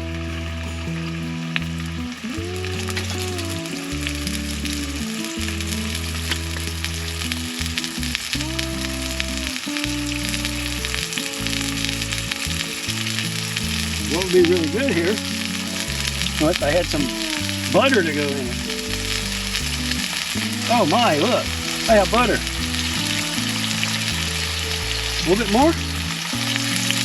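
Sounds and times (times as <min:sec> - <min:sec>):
ham sizzling in a pan: 0:05.5 - 0:27.0.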